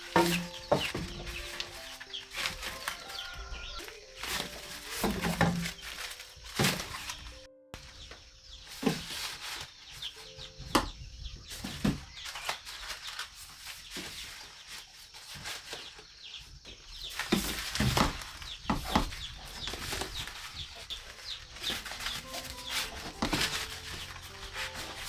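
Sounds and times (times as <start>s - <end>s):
wings flapping: 0.0s - 7.5s, 19.6s - 25.0s
chickens clucking: 0.0s - 12.2s, 18.8s - 25.0s.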